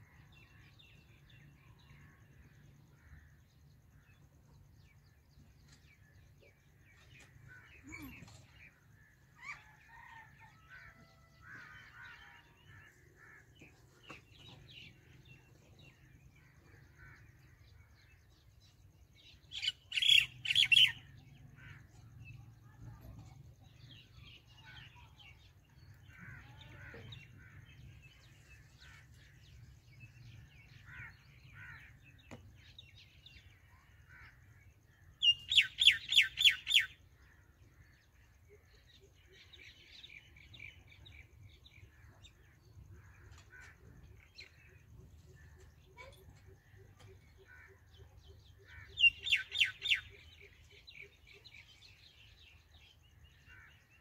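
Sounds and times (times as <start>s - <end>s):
wild birds chirping: 0.0s - 54.0s
rapid repeated bird call notes: 40.2s - 54.0s.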